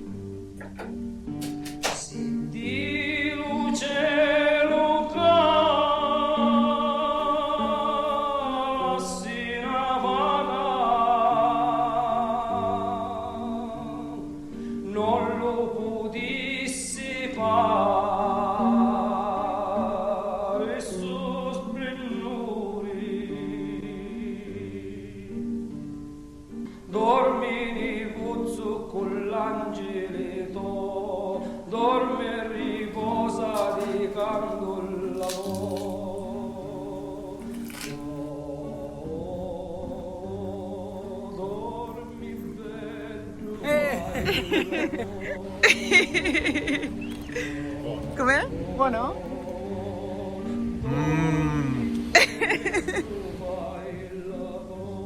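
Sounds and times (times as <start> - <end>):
person singing with vibrato: 32.6 - 55.0.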